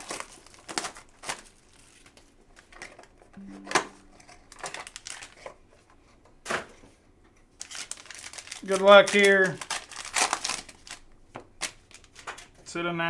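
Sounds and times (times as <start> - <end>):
plastic packaging crinkling: 7.6 - 12.5.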